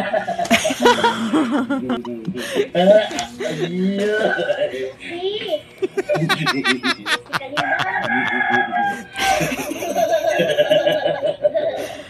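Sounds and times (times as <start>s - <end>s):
man laughing: 0.6s - 4.7s, 5.8s - 11.8s
child laughing: 3.3s - 12.0s.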